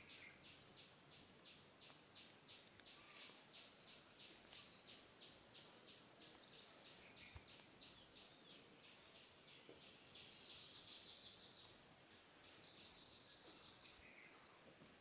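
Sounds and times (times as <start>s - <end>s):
faint birdsong chirps: 0.0s - 15.0s.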